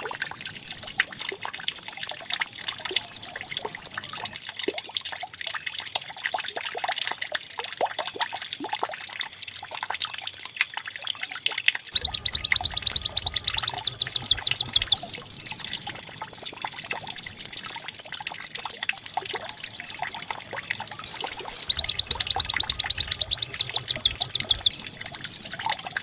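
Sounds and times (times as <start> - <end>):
bird singing fast trill: 0.0 - 4.1, 12.0 - 26.0
faint bird chirps: 0.0 - 4.2, 12.0 - 26.0
trickling water-like sound: 0.0 - 26.0.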